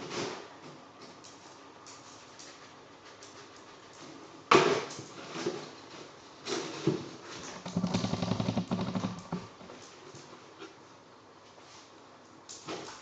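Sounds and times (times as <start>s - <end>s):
cardboard box scraping and rattling: 6.6s - 9.6s.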